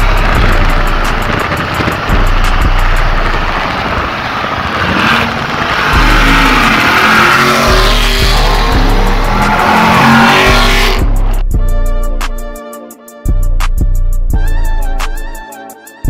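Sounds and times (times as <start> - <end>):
hip-hop beat with deep bass: 0.0 - 3.6, 5.9 - 16.0
car engines accelerating: 0.0 - 11.5
rushing road noise: 0.0 - 11.6.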